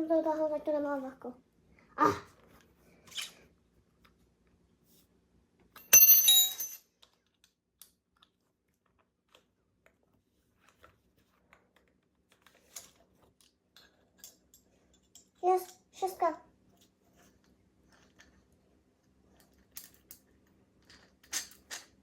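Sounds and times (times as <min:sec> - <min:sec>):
metal striking metal clink: 0:05.8 - 0:06.8
faint clicks of tools handled: 0:10.6 - 0:15.8.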